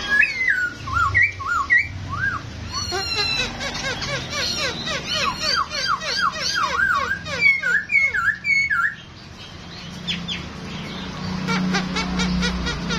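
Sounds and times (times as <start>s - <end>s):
bird singing swooping whistles: 0.0s - 3.1s, 5.2s - 9.1s.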